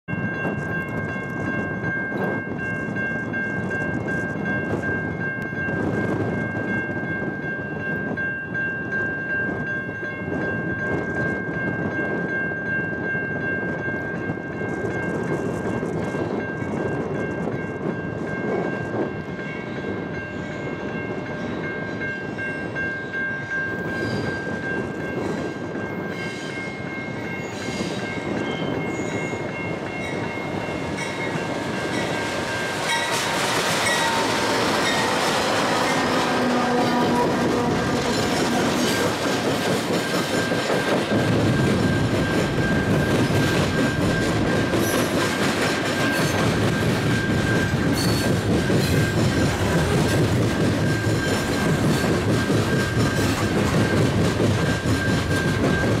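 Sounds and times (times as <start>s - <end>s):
train low rumble: 0.1s - 56.0s
high ringing tone: 15.8s - 39.0s.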